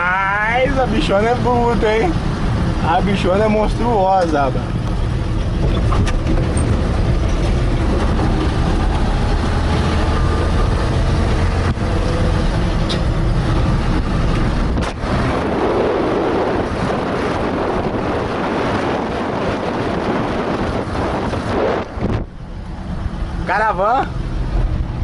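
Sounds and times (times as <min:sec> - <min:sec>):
road noise: 0:00.0 - 0:25.0
rushing wind noise: 0:00.0 - 0:25.0
truck engine droning: 0:00.0 - 0:25.0.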